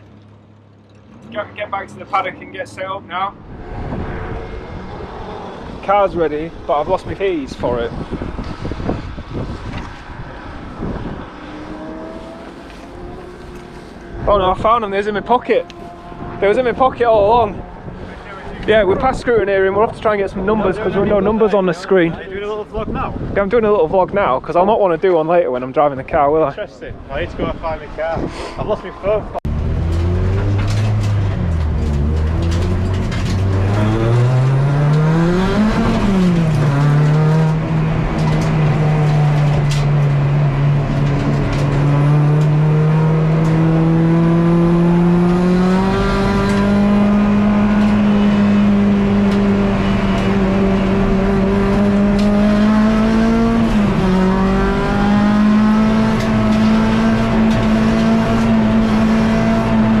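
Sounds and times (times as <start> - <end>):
race car engine accelerating hard: 3.4 - 19.1, 29.4 - 60.0.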